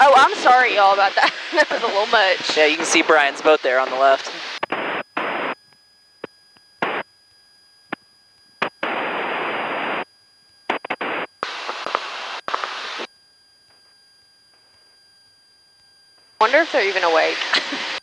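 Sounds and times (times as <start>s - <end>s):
cockpit noise hiss on intercom: 0.0s - 4.6s, 16.4s - 18.0s.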